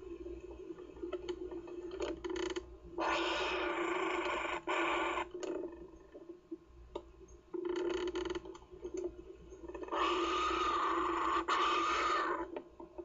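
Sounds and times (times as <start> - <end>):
kookaburra chick rasping calls: 9.9 - 12.5.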